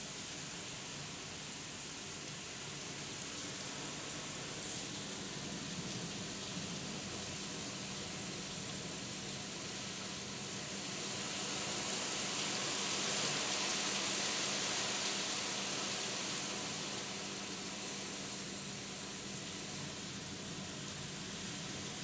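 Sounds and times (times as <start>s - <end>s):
heavy rain pouring: 10.0s - 20.7s.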